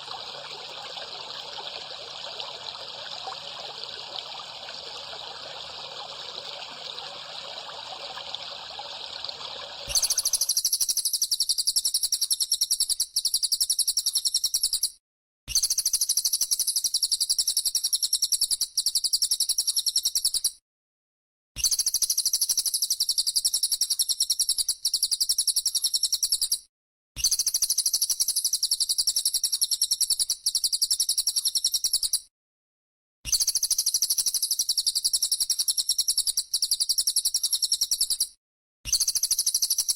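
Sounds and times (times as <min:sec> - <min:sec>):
trickling water: 0:00.0 - 0:10.5.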